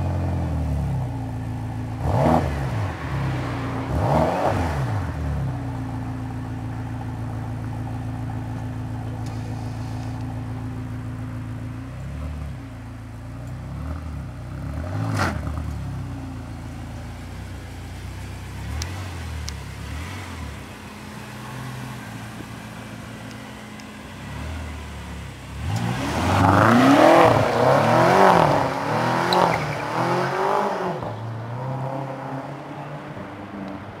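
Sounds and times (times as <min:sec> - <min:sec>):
car engine idling and revving: 0:00.0 - 0:34.0.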